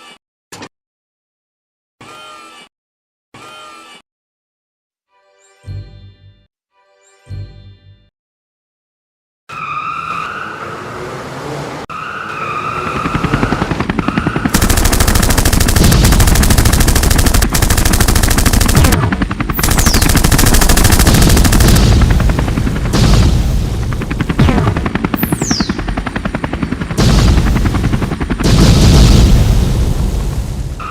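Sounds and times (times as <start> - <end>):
rapid machine-gun-like rattling: 13.9 - 23.1.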